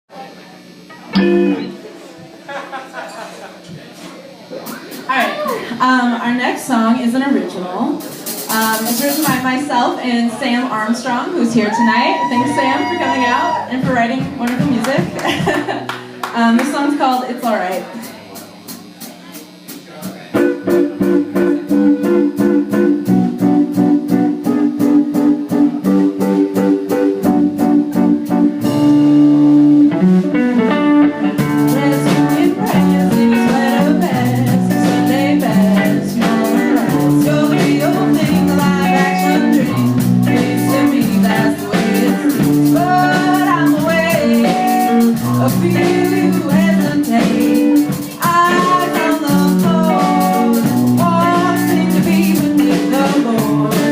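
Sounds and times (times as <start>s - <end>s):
electric guitar: 0.2s - 6.8s, 8.0s - 53.9s
drums with steady beat: 3.6s - 6.7s, 7.9s - 53.9s
person singing: 11.8s - 13.9s, 31.4s - 53.9s.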